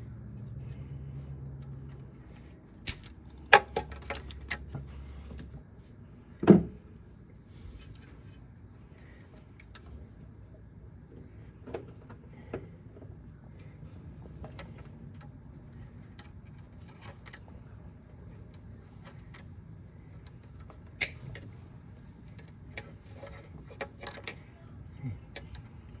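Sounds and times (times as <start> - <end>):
low steady hum: 0.0 - 26.0
hand tools clicking on metal parts: 2.8 - 4.7.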